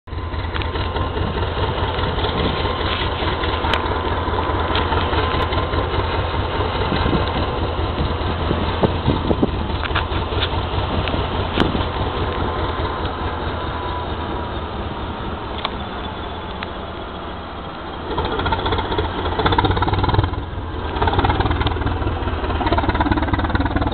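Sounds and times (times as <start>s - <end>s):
diesel train engine idling: 0.0s - 23.9s.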